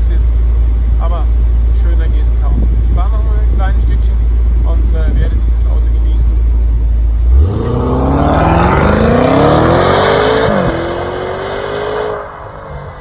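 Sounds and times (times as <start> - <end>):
car engine accelerating hard: 7.2 - 13.0.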